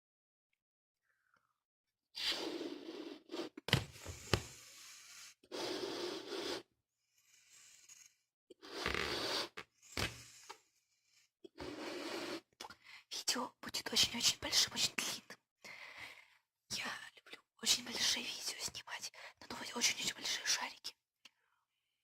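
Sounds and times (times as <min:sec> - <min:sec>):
breaths blowing up balloon: 0:02.2 - 0:12.6.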